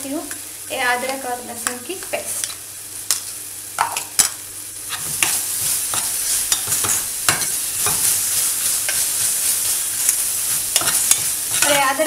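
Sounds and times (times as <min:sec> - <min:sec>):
onion sizzling in hot oil: 0:00.0 - 0:12.0
spoon scraping a metal pan: 0:04.9 - 0:12.0.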